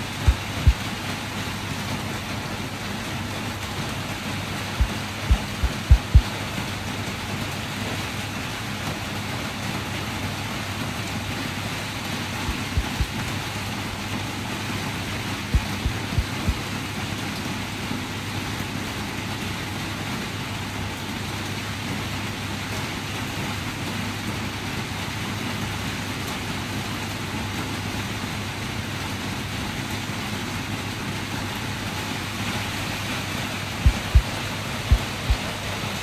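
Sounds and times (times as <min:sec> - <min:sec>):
dull low thumps: 0:00.0 - 0:00.9, 0:04.8 - 0:06.3, 0:12.5 - 0:13.1, 0:15.6 - 0:16.6, 0:33.8 - 0:35.8
steady rain: 0:00.0 - 0:36.0.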